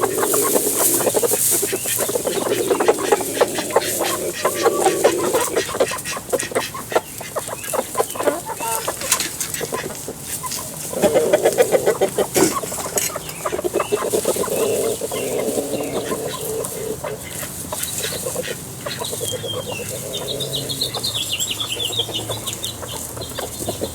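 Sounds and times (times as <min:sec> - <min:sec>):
chickens clucking: 0:00.0 - 0:23.9.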